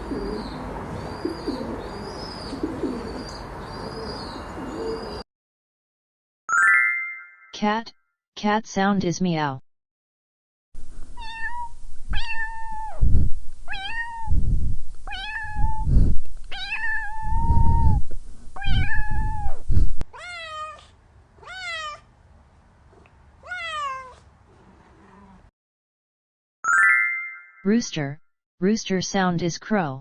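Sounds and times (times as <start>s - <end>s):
cat low rumble: 10.8s - 22.1s, 22.7s - 25.5s
cat meowing: 11.2s - 13.0s, 13.7s - 14.4s, 15.1s - 15.9s, 16.5s - 18.0s, 18.6s - 22.1s, 22.9s - 25.5s.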